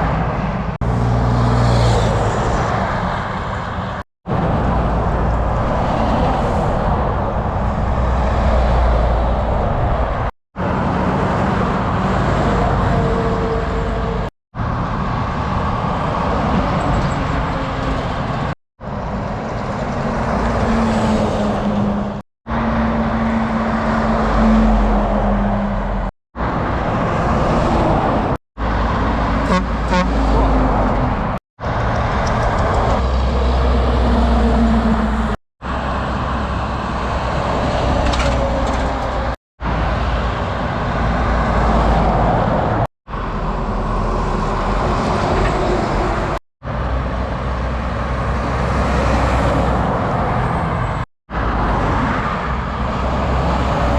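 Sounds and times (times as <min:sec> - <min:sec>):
truck and road traffic: 0:00.0 - 0:53.9
low vehicle horn: 0:29.4 - 0:30.6.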